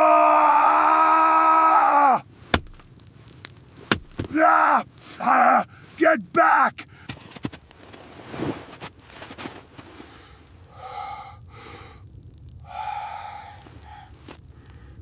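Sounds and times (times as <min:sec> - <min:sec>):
heavy gasping breaths: 0:10.1 - 0:12.0, 0:12.6 - 0:15.0.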